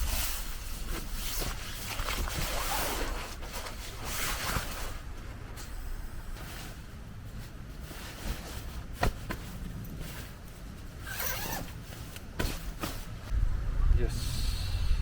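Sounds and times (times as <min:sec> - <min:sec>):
zipper pulled: 0:11.0 - 0:11.8
low rumble: 0:13.3 - 0:15.0.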